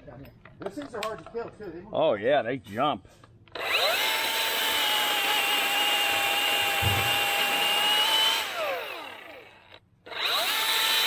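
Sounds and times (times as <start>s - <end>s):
battery chainsaw whining: 3.5s - 11.0s.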